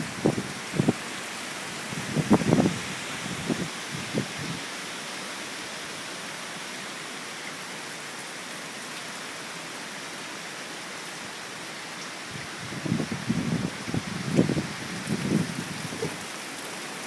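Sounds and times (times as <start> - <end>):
wind and rain storm hiss: 0.0 - 17.0.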